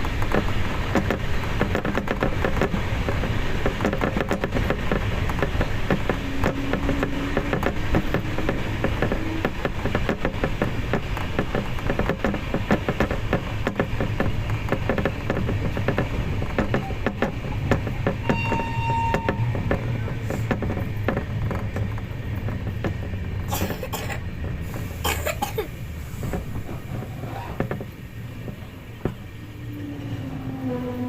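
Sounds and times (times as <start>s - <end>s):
train running on rails: 0.0s - 31.0s
steady horn-like tone: 18.2s - 19.7s, 29.4s - 31.0s.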